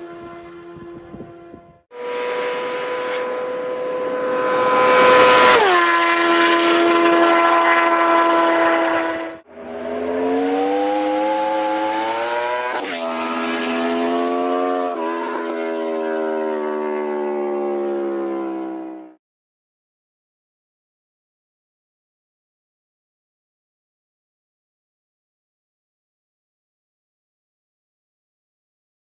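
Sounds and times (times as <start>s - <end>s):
motorcycle engine revving: 0.0s - 19.2s.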